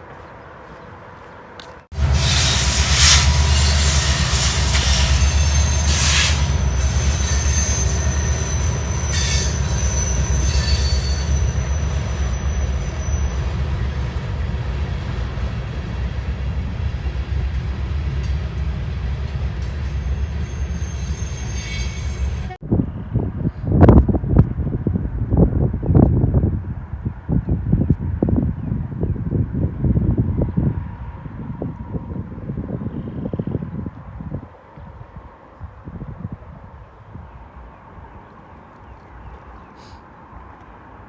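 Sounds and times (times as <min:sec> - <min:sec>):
train rumbling past: 0:00.0 - 0:22.7
high-pitched wheel squeals: 0:02.0 - 0:14.2, 0:19.8 - 0:22.6.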